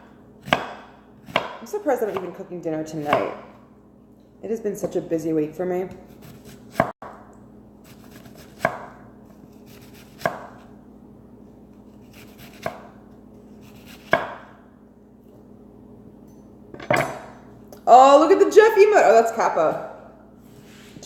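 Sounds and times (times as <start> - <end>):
knife chopping on cutting board: 0.4 - 2.4, 3.0 - 3.6, 6.1 - 7.0, 7.9 - 9.0, 9.7 - 10.7, 12.1 - 13.0, 13.6 - 14.5.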